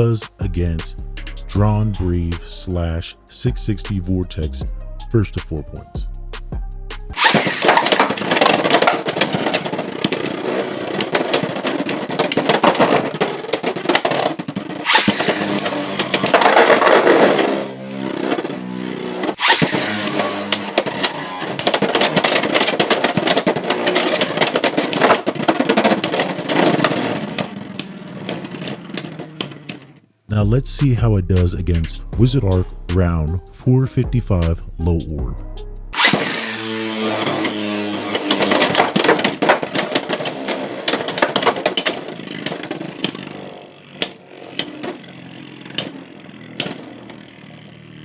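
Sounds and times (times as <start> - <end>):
grinding rattle: 7.1 - 30.0, 36.0 - 48.0
spinning tops clattering: 7.1 - 30.0, 36.0 - 48.0.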